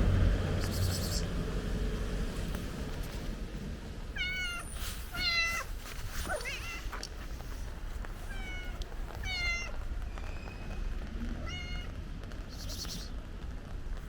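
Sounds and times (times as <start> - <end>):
cat meowing: 4.2 - 5.7, 6.3 - 7.2, 8.2 - 9.8, 11.4 - 11.9.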